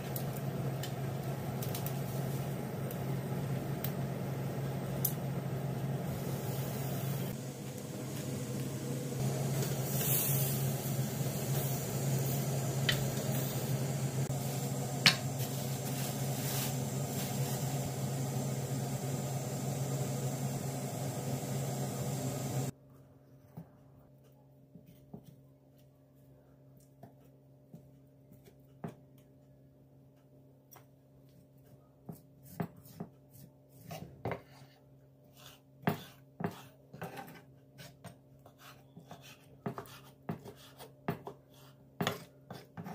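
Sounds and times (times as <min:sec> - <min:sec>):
machine humming: 0:02.8 - 0:22.7.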